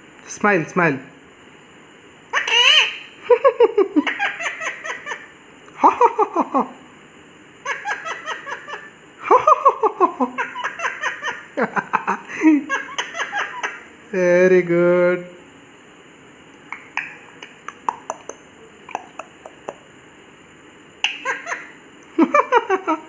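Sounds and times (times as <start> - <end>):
parrot squawk: 2.3 - 3.2
parrot mimicking laughter: 2.3 - 6.7, 7.6 - 13.9, 17.5 - 19.8, 21.0 - 23.0.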